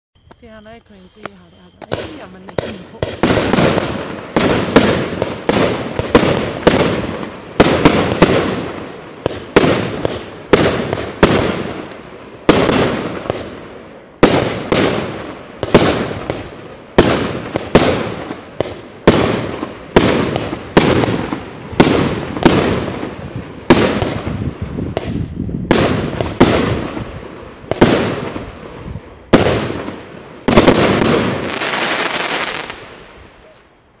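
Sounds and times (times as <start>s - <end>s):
fireworks bursting: 0.2s - 33.8s
fireworks crackling: 0.2s - 33.8s.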